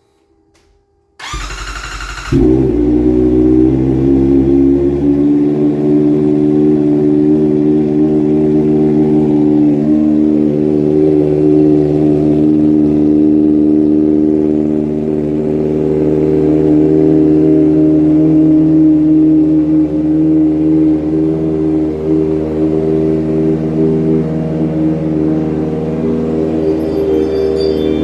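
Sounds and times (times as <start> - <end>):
motorcycle engine idling: 1.2 - 4.3.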